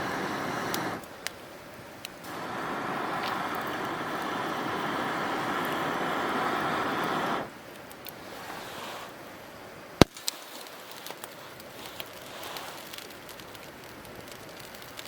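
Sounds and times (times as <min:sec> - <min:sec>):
campfire crackling: 0:00.0 - 0:15.0
loud pop of fire: 0:10.0 - 0:10.4.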